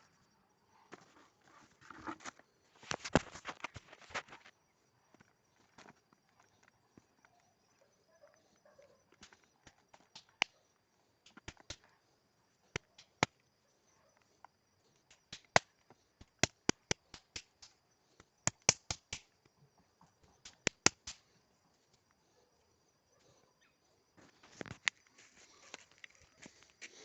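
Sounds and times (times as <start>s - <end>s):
sharp taps and clicks: 9.1s - 10.6s, 11.2s - 11.9s, 15.1s - 19.4s, 20.2s - 21.3s.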